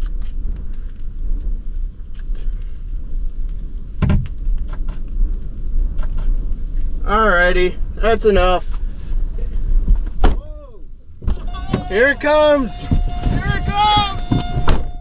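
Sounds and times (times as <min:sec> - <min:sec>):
storm wind buffeting microphone: 0:11.4 - 0:15.0.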